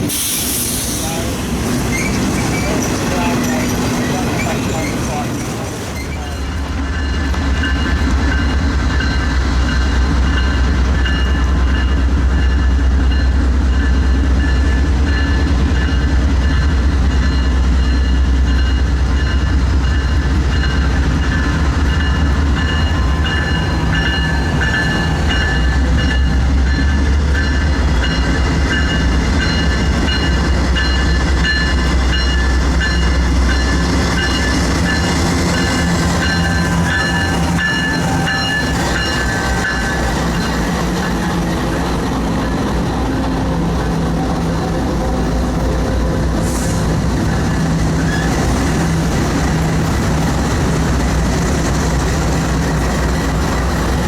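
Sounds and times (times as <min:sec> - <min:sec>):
freight train rolling by: 0:00.0 - 0:54.0.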